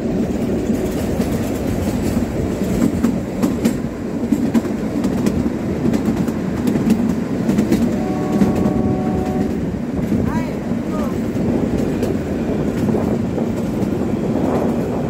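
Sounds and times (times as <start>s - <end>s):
rail joint clicks: 0.0s - 15.0s
rumble of wheels on track: 0.0s - 15.0s.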